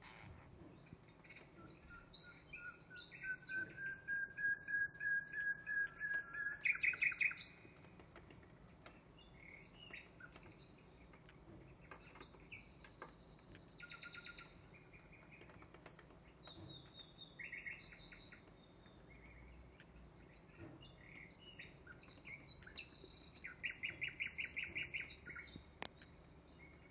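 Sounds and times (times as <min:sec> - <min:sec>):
nightingale song through speakers: 0:01.4 - 0:07.5.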